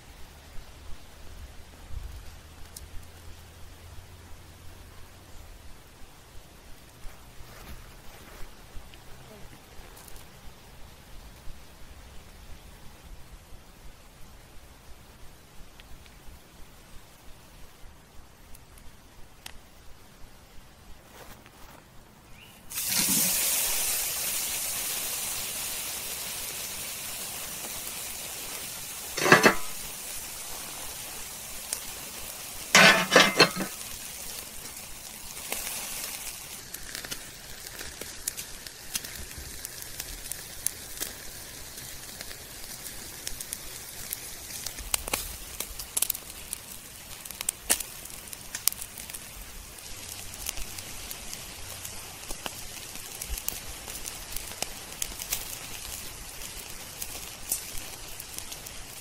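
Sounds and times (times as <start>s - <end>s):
crackles and pops: 0.0s - 59.0s
steak sizzling on grill: 22.4s - 59.0s.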